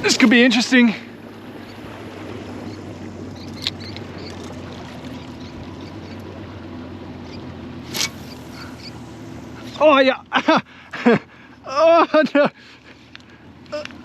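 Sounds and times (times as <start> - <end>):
boat engine humming: 0.0 - 14.0
water around hull: 0.0 - 14.0
sharp click: 7.9 - 8.4.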